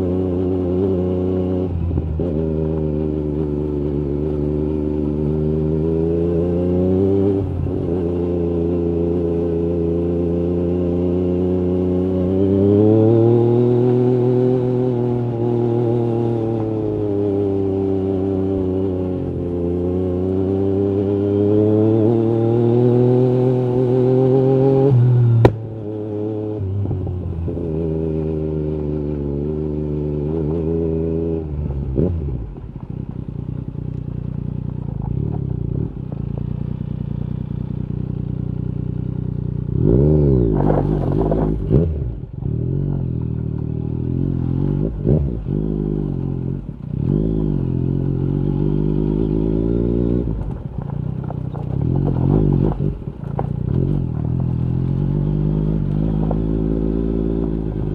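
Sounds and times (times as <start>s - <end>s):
motorcycle engine revving: 0.0s - 57.9s
exhaust crack: 25.2s - 25.9s, 40.4s - 43.8s, 50.2s - 57.9s.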